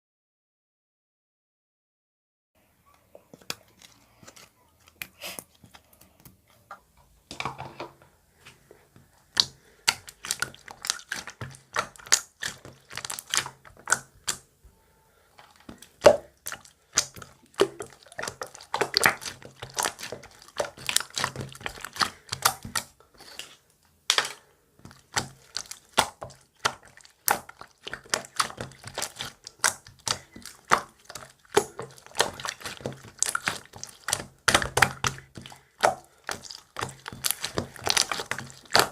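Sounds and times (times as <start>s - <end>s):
slime squeezed with sticky pops: 9.4s - 14.4s, 15.7s - 22.9s, 24.9s - 38.9s.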